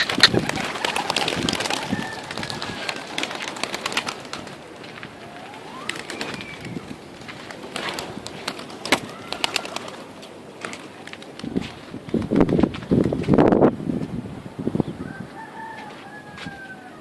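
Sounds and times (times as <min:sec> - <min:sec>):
pigeons cooing: 0:00.0 - 0:10.2.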